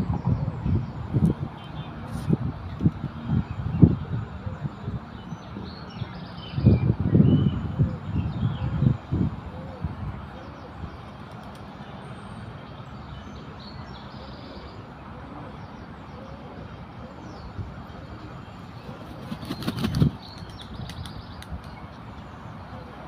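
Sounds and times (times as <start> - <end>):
duck flapping wings: 19.1 - 20.2.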